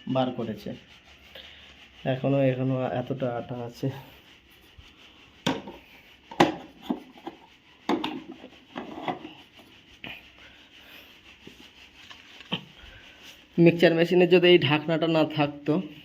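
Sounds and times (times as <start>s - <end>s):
light scraping: 0.0s - 14.0s
utensils tapping and knocking: 5.4s - 9.4s.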